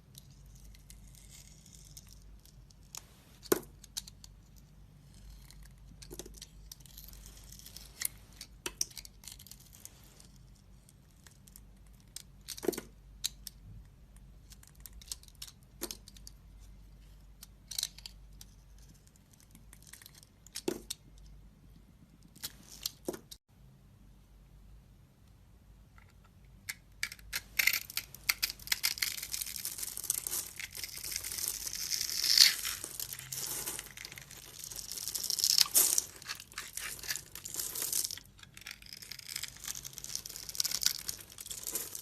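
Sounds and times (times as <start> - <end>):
knife carving soap: 27.0 - 33.3, 38.2 - 40.8.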